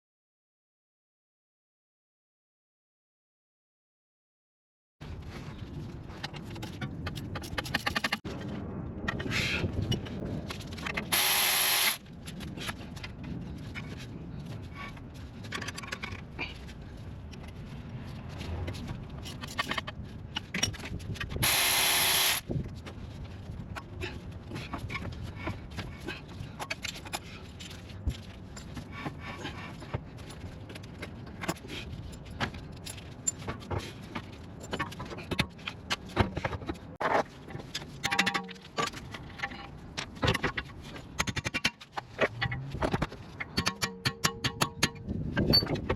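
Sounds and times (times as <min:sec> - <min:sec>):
loud hissing bursts: 0:11.1 - 0:12.0, 0:21.4 - 0:22.4
tools clinking and scraping: 0:37.7 - 0:39.7.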